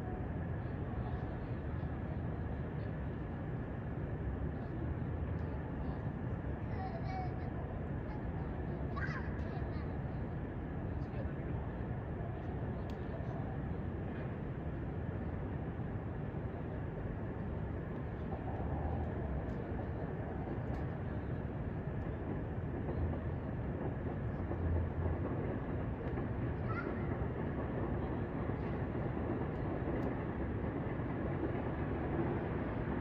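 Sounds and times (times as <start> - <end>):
distant trains rumbling: 0.0 - 33.0
distant traffic: 13.4 - 33.0.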